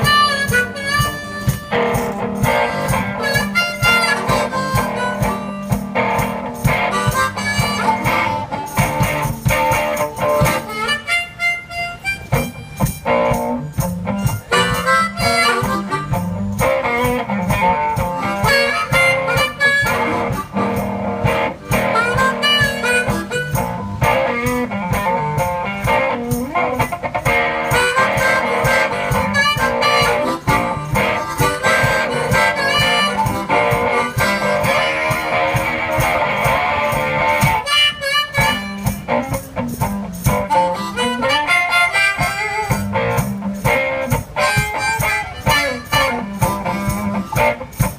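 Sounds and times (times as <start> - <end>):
harmonica with bending notes: 0.0 - 47.9
steady beat: 0.0 - 47.9
strummed guitar: 0.0 - 47.9.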